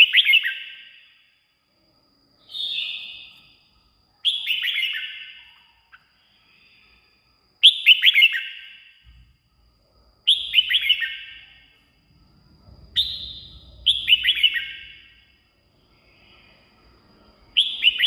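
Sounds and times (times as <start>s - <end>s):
bird singing falling notes: 12.7s - 15.2s.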